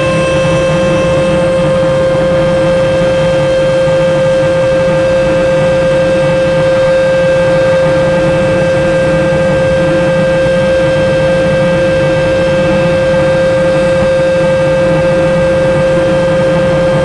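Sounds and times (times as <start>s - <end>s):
car wash whine: 0.0s - 17.0s.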